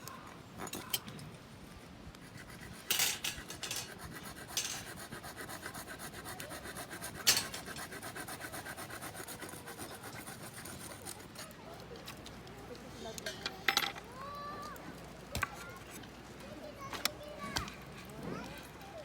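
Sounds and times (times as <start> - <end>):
rhythmic rubbing strokes: 2.2 - 11.4.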